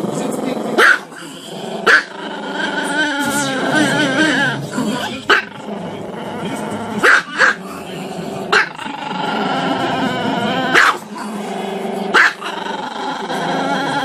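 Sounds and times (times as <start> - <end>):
dog barking sharply: 0.8 - 1.1, 7.0 - 7.6, 10.8 - 11.0.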